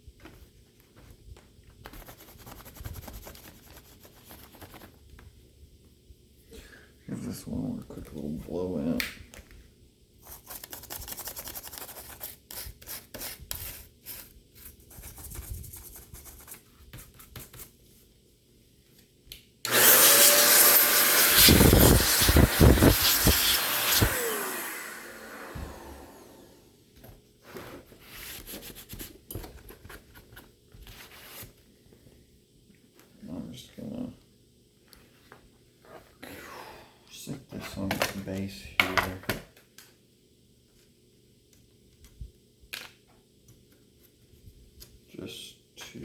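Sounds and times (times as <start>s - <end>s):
compressed air hissing: 19.7s - 24.8s.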